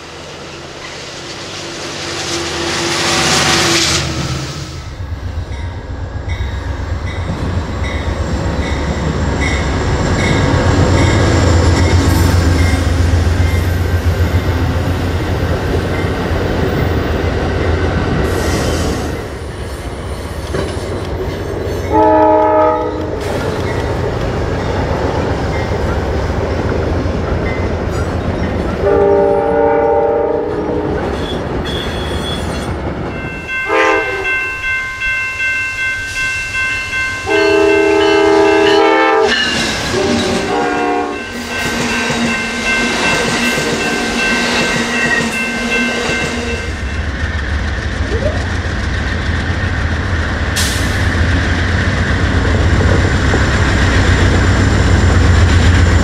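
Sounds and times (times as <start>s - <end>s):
train wheels rumbling on rail: 0.0s - 56.0s
locomotive air horn blasts: 21.9s - 23.2s, 28.8s - 30.9s, 33.6s - 34.4s, 37.2s - 41.3s.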